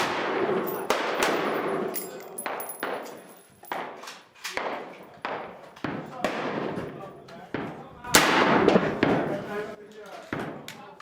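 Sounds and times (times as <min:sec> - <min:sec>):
gunshots echoing: 0:00.0 - 0:09.6.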